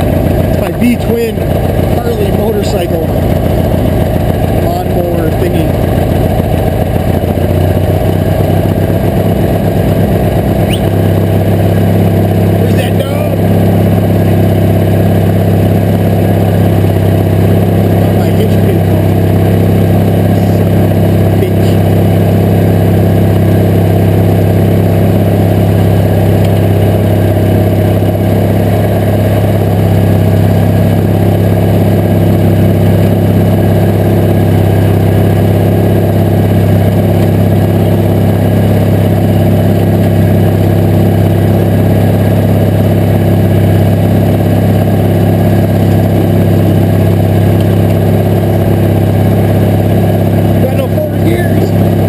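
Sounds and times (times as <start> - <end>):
garden tractor engine running: 0.0 - 52.0.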